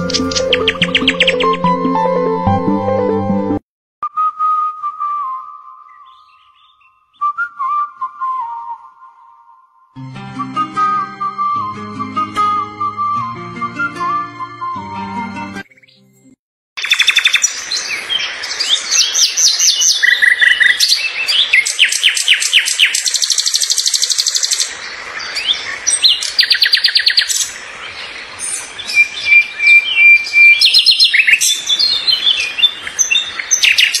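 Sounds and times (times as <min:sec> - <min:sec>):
songbirds chirping in trills: 0:00.0 - 0:01.7, 0:05.8 - 0:07.3, 0:16.8 - 0:34.0.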